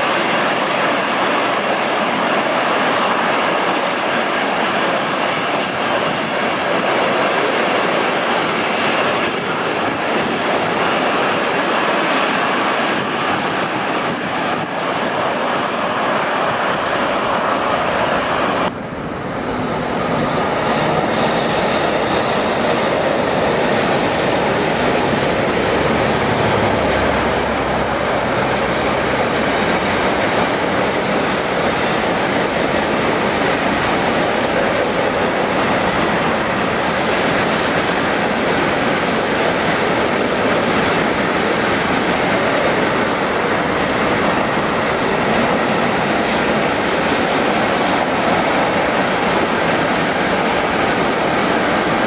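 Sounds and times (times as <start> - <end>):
train wheels clattering over rails: 19.2 - 52.0
thin high wheel squeal: 19.4 - 27.0.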